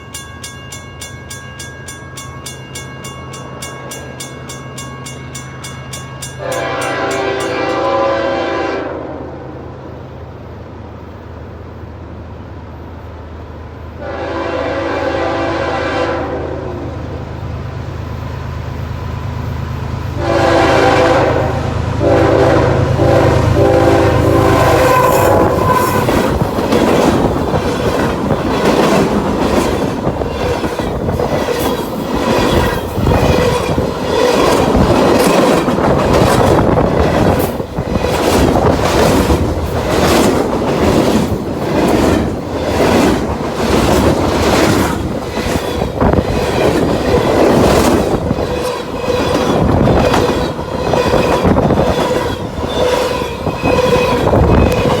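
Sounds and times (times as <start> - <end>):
diesel locomotive engines: 0.0 - 55.0
train horn: 6.4 - 9.7, 14.0 - 17.2, 20.2 - 26.4
train wheels clickety-clack: 23.3 - 55.0.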